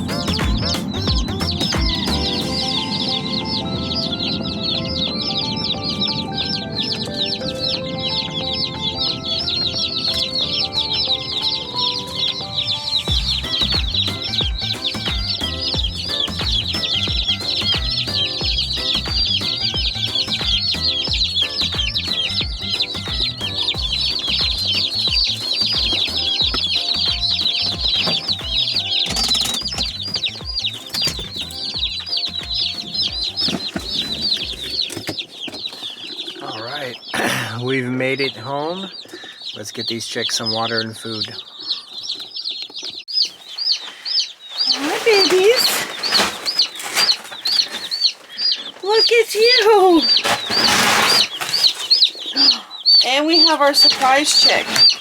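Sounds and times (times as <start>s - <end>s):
background music with steady beat: 0.0s - 35.0s
chicks peeping: 0.0s - 55.0s.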